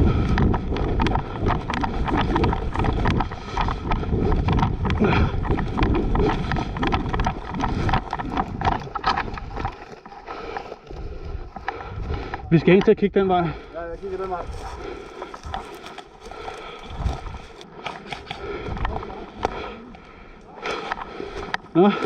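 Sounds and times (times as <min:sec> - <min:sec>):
knocks and crunches: 0:00.0 - 0:12.5, 0:14.0 - 0:19.0
wind rumble on microphone: 0:00.0 - 0:20.3
footsteps: 0:00.0 - 0:22.0
clothing and gear rustling: 0:13.8 - 0:19.2.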